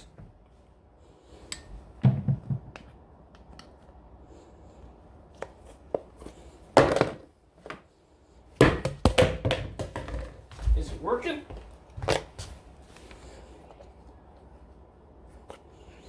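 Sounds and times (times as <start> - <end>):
plastic bottle knocks and taps: 2.0 - 2.9.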